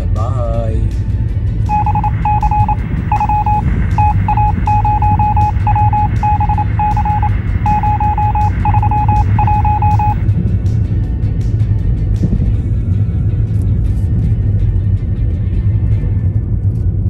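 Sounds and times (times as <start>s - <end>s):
electronic morse code beeps: 1.7s - 10.2s.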